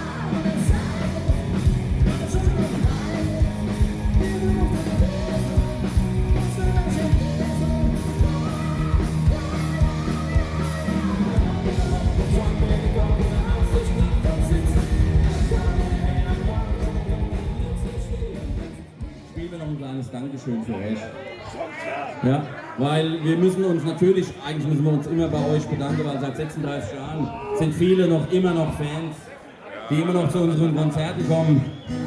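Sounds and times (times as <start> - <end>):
live rock band playing: 0.0 - 19.4
sung and shouted vocals: 0.0 - 19.4
steady drum beat: 0.0 - 19.6.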